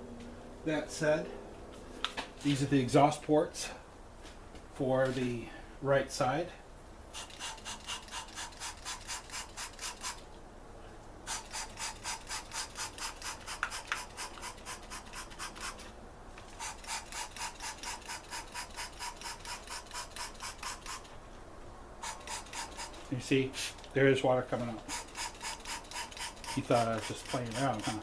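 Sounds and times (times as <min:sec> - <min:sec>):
spray bottle squirting water: 0:07.2 - 0:10.3, 0:11.3 - 0:15.9, 0:16.5 - 0:21.1, 0:22.0 - 0:23.9, 0:24.8 - 0:28.0.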